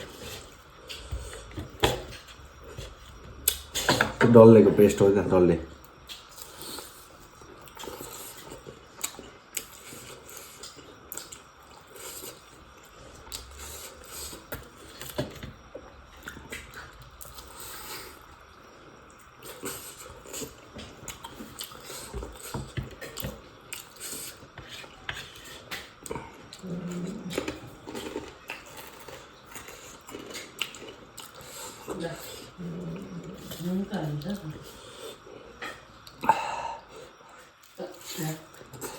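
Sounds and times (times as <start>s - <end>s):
chewing and biting food: 19.0s - 35.0s.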